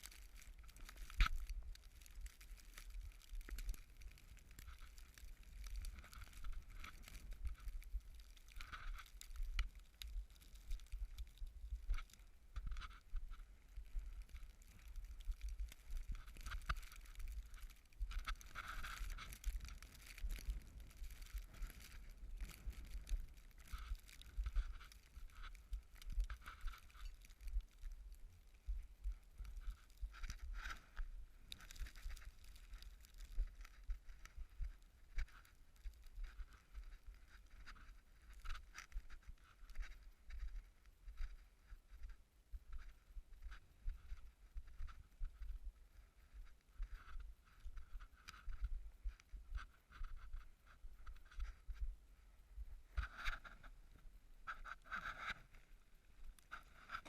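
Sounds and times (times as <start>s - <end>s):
light scattered crackles: 0.0s - 57.0s.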